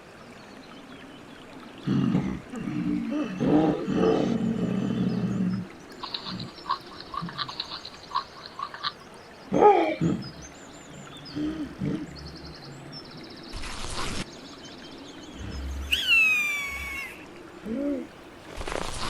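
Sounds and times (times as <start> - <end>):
low pitched animal call: 15.4 - 18.1.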